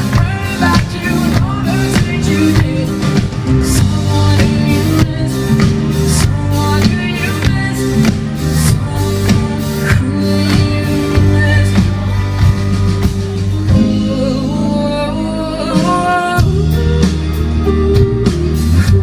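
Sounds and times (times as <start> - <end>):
bass guitar: 0.0 - 19.0
drum kit beat: 0.0 - 19.0
electric guitar: 0.0 - 19.0
person singing: 0.0 - 19.0.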